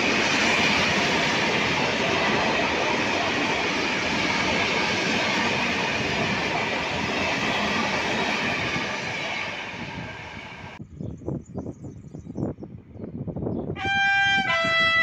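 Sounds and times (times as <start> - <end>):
freight train wheels rumbling: 0.0 - 10.8.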